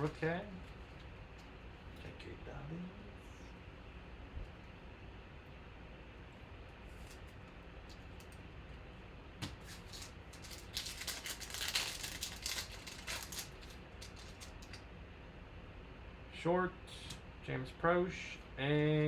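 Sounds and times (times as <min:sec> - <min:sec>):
plastic wrapping crinkling: 0:09.5 - 0:14.8.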